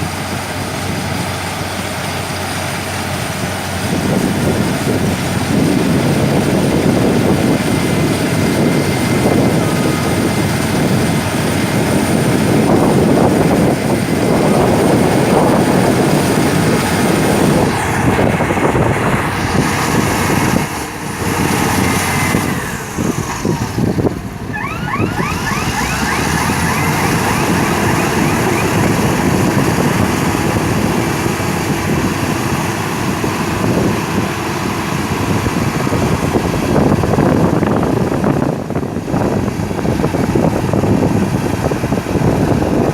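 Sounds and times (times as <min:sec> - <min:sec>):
bulldozer engine and tracks: 0:00.0 - 0:42.9
short squeals: 0:24.5 - 0:28.9.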